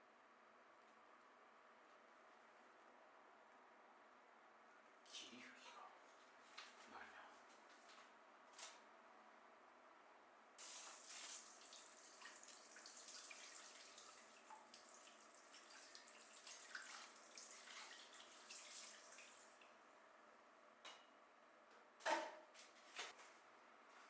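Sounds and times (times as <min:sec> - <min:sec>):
water running from tap: 0:10.6 - 0:19.6.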